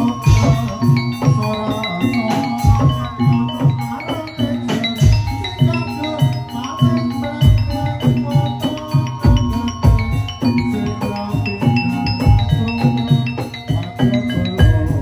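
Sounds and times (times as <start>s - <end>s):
metallophones and gong-chimes melody: 0.0s - 15.0s
steady drum beat: 0.0s - 15.0s.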